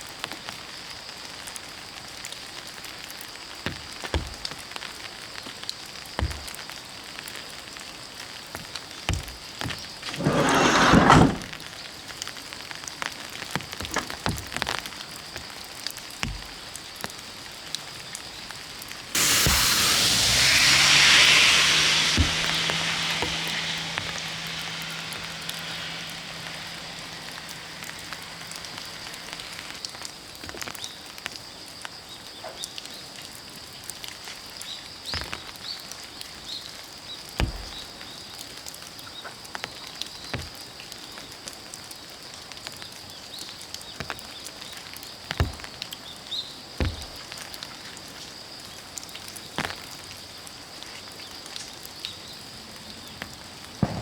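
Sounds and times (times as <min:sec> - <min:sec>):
steady rain: 0:12.5 - 0:37.1
low hum: 0:19.2 - 0:29.8.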